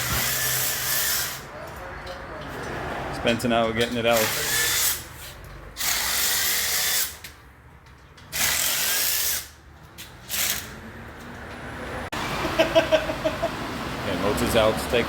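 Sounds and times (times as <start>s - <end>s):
handheld power tool bursts: 8.3s - 9.6s, 10.2s - 10.7s.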